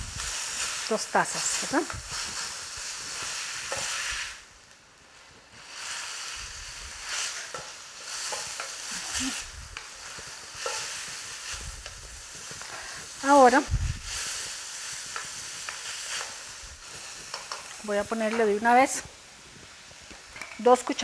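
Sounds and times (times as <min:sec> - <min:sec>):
onions sizzling in hot oil: 0:00.0 - 0:21.0
spatula scraping and knocking pan: 0:01.5 - 0:04.2, 0:07.0 - 0:08.9, 0:09.8 - 0:12.6, 0:14.3 - 0:18.6.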